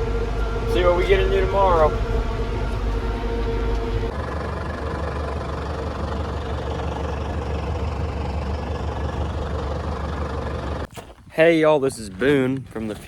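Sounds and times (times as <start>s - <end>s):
tractor engine drone: 0.0s - 10.9s.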